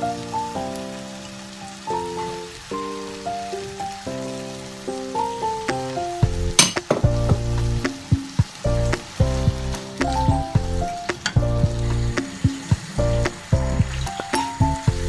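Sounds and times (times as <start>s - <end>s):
food sizzling in a wok: 0.0s - 15.0s
background music with bass: 6.0s - 15.0s.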